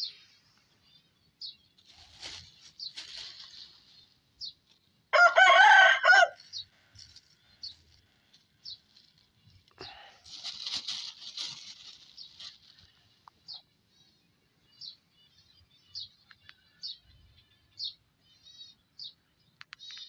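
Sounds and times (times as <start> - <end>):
small bird chirping: 0.0 - 5.1, 6.4 - 20.0
plastic bag crinkling: 1.8 - 4.0, 8.8 - 13.0.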